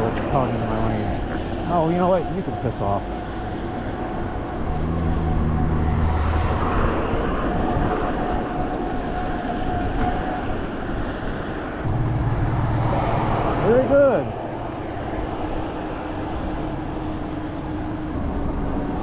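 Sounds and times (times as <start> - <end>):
car driving road noise: 0.0 - 19.0
low engine hum: 2.4 - 8.7, 11.8 - 19.0.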